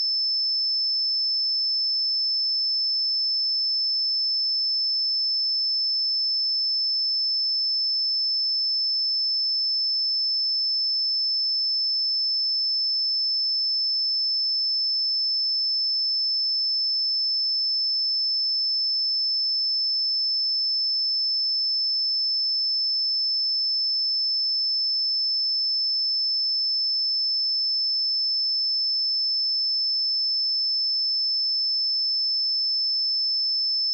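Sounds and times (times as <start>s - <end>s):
high-pitched sine test tone: 27.9s - 33.9s.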